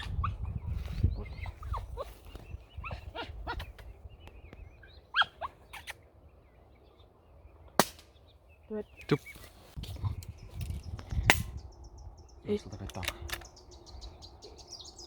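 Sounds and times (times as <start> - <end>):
wind buffeting microphone: 0.0 - 5.0, 9.2 - 15.0
birds calling downward-sliding notes: 0.0 - 15.0.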